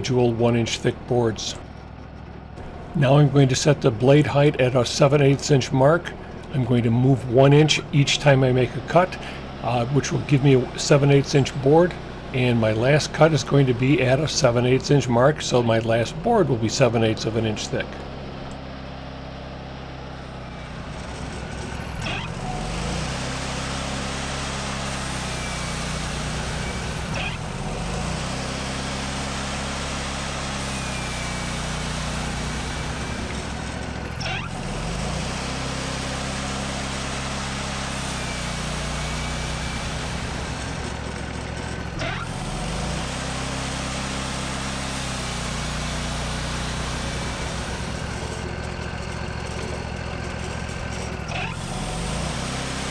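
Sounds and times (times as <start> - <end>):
sawmill engine sawing log: 0.0 - 52.9.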